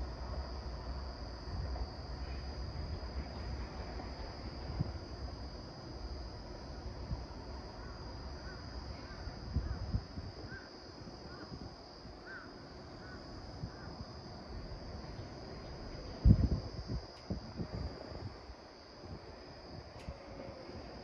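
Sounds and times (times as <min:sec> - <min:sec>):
wind rumbling on microphone: 0:08.4 - 0:12.4, 0:16.0 - 0:21.0.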